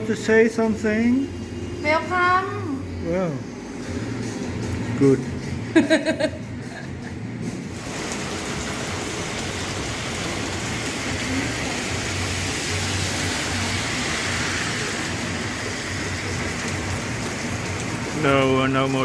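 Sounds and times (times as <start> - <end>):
steady rain falling: 7.7 - 19.0.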